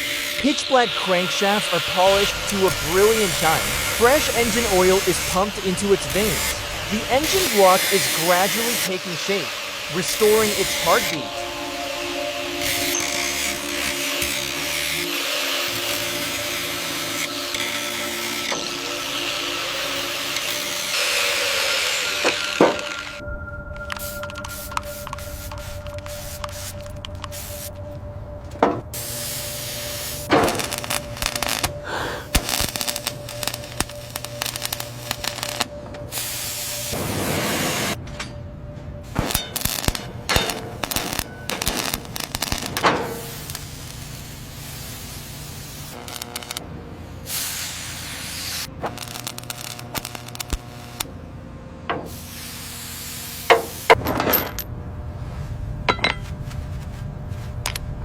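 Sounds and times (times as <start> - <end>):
hissing sprays: 0.0 - 23.2, 24.0 - 27.8, 29.0 - 38.0, 40.4 - 46.0, 47.3 - 48.7, 52.1 - 54.0
tools clinking on engine parts: 55.9 - 56.3.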